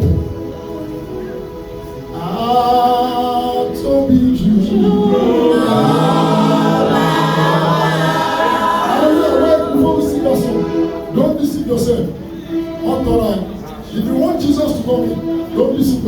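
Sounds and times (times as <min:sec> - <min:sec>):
group singing a slow worship song: 0:02.2 - 0:11.4.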